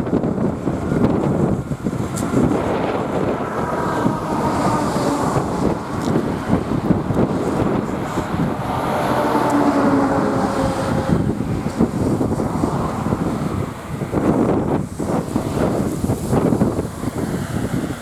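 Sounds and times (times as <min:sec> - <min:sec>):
faint propeller drone: 0:00.0 - 0:18.0
wind buffeting microphone: 0:00.0 - 0:18.0.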